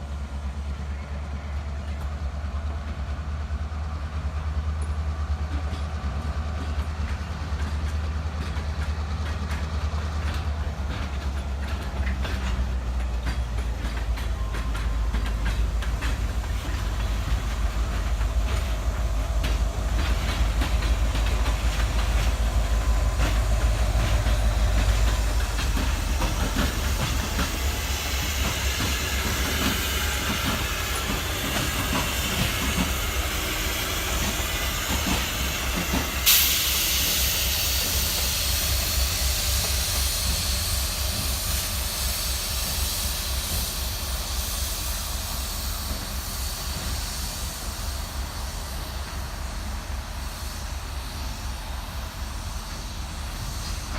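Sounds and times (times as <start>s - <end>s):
diesel locomotive rumble: 0.0s - 53.9s
train wheels clicking over rail joints: 1.7s - 53.9s
loud air hiss: 16.2s - 53.9s.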